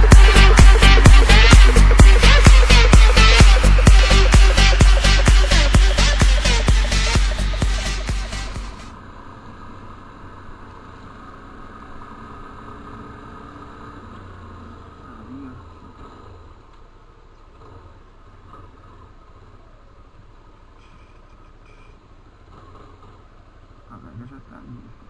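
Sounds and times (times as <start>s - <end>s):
engine humming: 0.0s - 25.0s.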